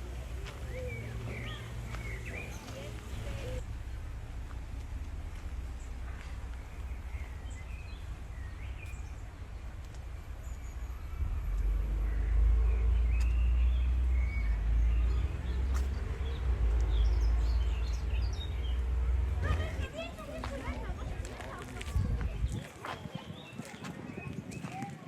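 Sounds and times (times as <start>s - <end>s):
birds chirping: 0.0s - 25.0s
low street rumble: 0.0s - 25.0s.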